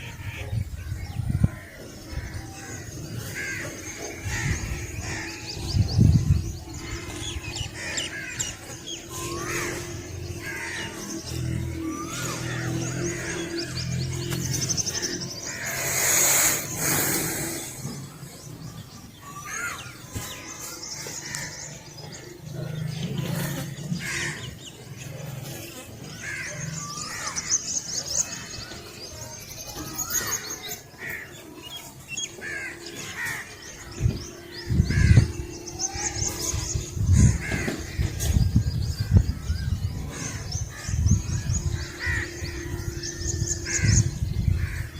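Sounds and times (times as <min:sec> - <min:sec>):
small birds chirping: 0:00.0 - 0:44.9
crows cawing: 0:01.4 - 0:05.6, 0:06.8 - 0:13.8, 0:14.9 - 0:16.7, 0:21.1 - 0:21.8, 0:24.0 - 0:24.5, 0:26.1 - 0:27.6, 0:32.4 - 0:38.4, 0:40.1 - 0:44.9
loud rush of noise: 0:09.2 - 0:18.6.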